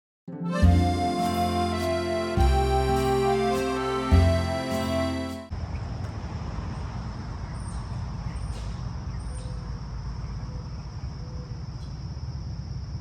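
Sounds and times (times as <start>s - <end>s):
insects droning: 5.6s - 13.0s.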